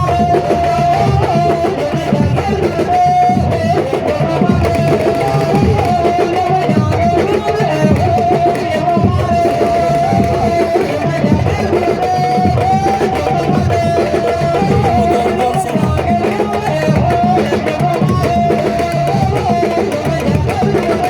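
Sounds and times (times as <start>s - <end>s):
loud drumming: 0.0s - 21.0s.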